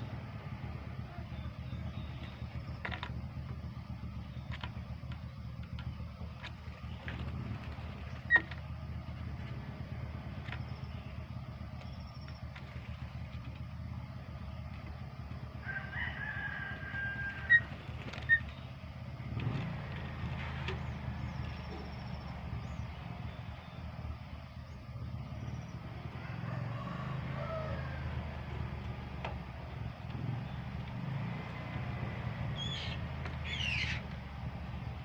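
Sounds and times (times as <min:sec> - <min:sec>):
rooster crowing: 0:15.5 - 0:17.8, 0:26.0 - 0:28.8.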